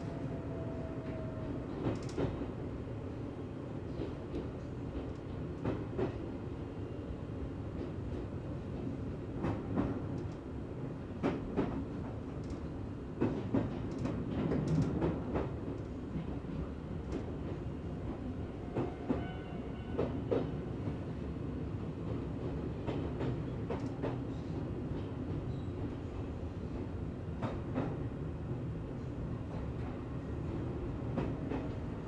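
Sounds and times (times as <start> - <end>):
train low rumble: 0.0 - 32.0
train wheel clacks: 22.5 - 24.2.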